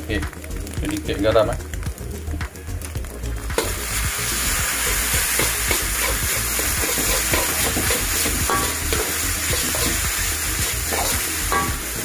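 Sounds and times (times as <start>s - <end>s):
food sizzling in a wok: 3.5s - 12.0s.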